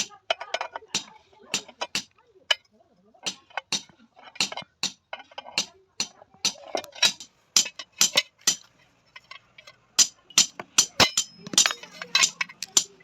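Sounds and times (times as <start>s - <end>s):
hammer striking iron sheet: 10.0s - 13.0s.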